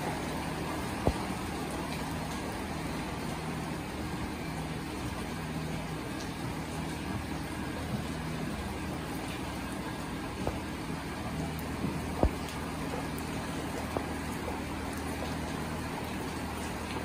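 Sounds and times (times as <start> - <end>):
rain hissing: 0.0 - 17.0.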